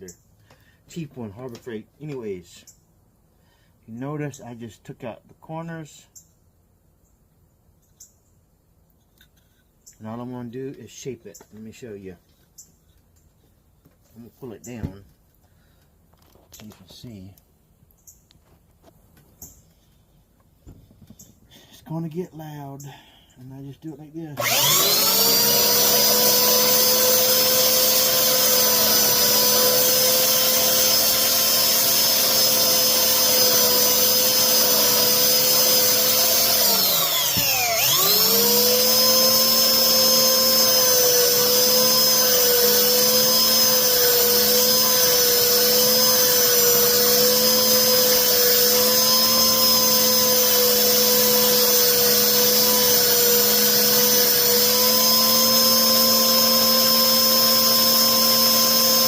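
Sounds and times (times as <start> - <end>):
belt sander sanding wood: 24.4 - 59.0.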